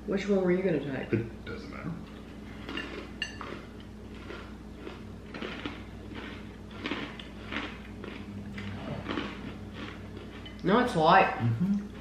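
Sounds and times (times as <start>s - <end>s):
crunchy pretzel chewing: 2.6s - 11.0s.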